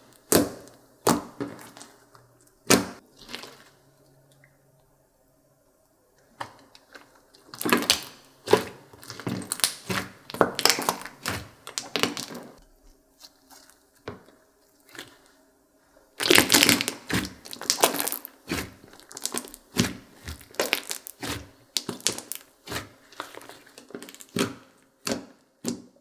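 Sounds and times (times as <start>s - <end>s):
slime squishing and popping: 0.2s - 1.9s, 7.5s - 12.6s, 16.2s - 25.8s.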